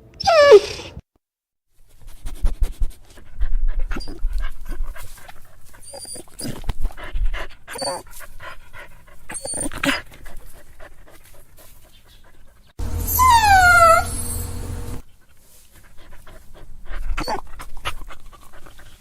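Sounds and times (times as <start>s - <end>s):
dog whimpering and crying: 0.2s - 1.0s, 5.8s - 6.6s, 7.7s - 8.1s, 9.3s - 10.0s, 12.9s - 15.0s
dog whining: 0.2s - 1.0s, 5.8s - 6.6s, 7.7s - 8.0s, 9.3s - 9.9s, 12.8s - 15.0s.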